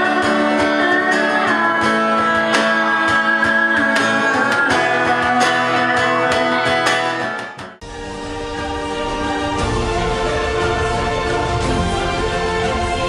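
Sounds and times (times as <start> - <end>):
guitar playing: 0.0 - 13.0.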